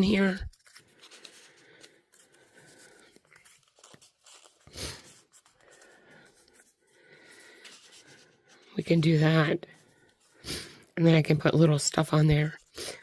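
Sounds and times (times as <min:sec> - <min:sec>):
paper rustling and scraping: 0:00.0 - 0:09.2.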